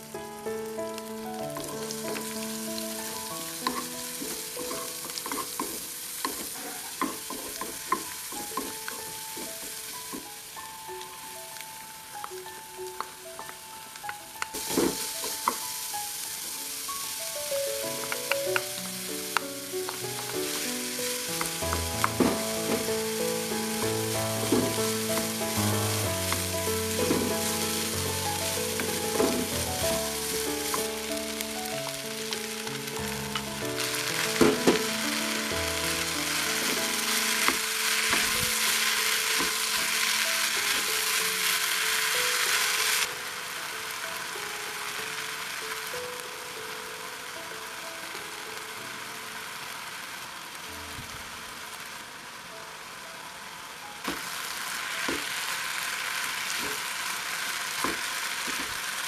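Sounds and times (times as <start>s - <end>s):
soft music: 0.0s - 56.6s
vegetables sizzling in a frying pan: 0.0s - 59.0s
utensils clacking against a pan: 3.7s - 10.3s.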